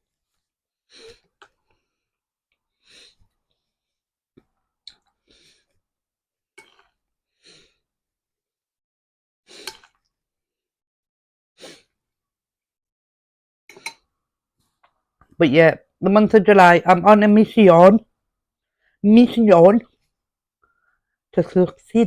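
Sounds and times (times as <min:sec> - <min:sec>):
person chewing: 0:09.6 - 0:10.0.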